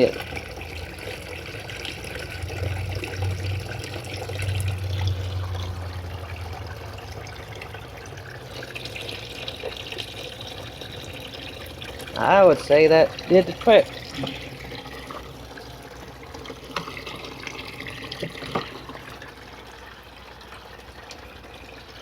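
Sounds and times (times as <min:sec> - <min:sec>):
water running and trickling: 0:00.0 - 0:22.0.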